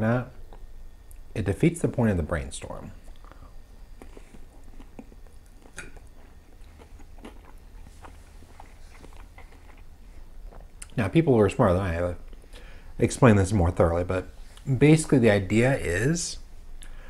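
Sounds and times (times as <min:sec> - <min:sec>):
person chewing food: 0:03.0 - 0:11.0.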